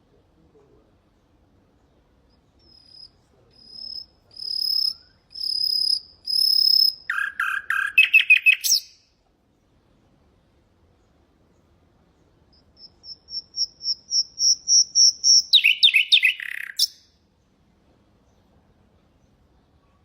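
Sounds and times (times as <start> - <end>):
nightingale singing: 1.8 - 9.1, 11.0 - 17.5.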